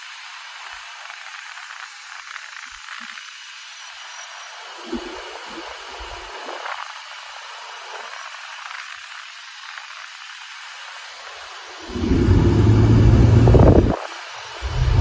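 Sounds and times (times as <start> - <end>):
low bumps: 11.9 - 14.0, 14.6 - 15.0
tyre and wind noise: 11.9 - 14.0.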